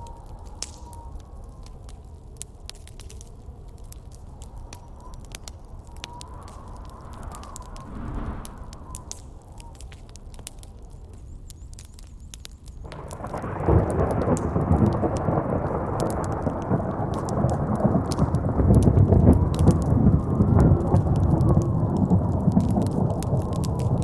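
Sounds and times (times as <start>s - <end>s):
campfire crackling: 0.0s - 24.0s
thunder rumbling: 5.9s - 9.9s, 12.9s - 24.0s.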